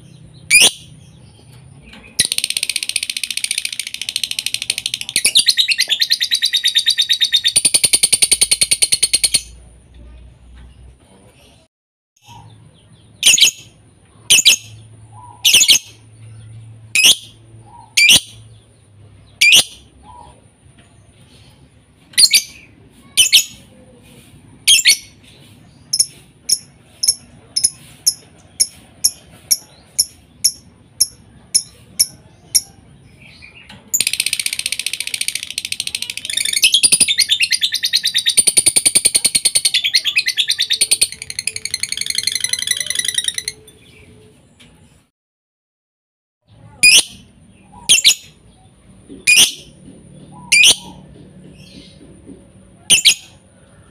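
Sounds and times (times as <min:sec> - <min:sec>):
lovebird calling: 0:46.8 - 0:48.3, 0:50.3 - 0:51.0.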